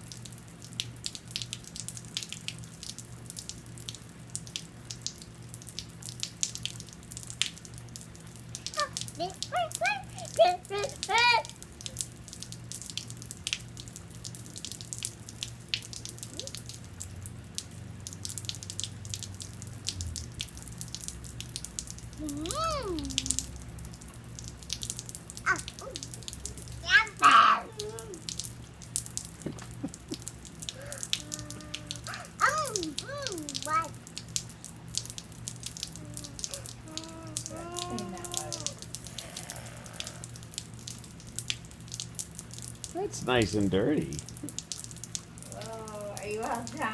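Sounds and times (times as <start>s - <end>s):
rain dripping and pattering: 0.0s - 46.9s
young child babbling: 8.7s - 11.6s, 16.2s - 16.7s, 22.2s - 23.5s, 25.5s - 28.4s, 30.7s - 34.0s, 35.9s - 40.3s.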